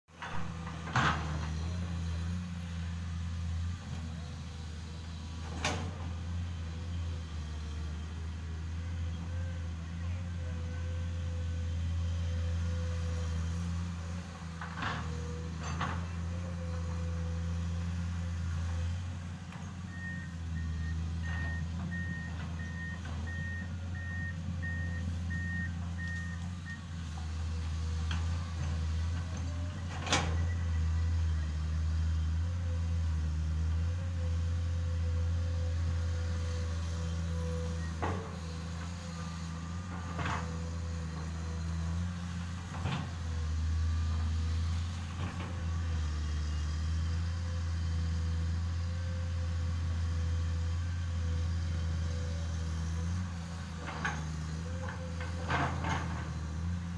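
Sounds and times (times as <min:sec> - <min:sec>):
excavator diesel engine: 0:00.1 - 0:56.9.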